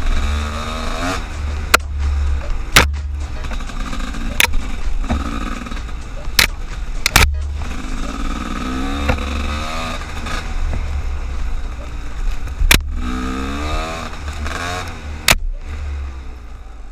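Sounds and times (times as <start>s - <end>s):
engine revving: 0.0s - 16.8s
sharp clicks: 4.3s - 7.5s.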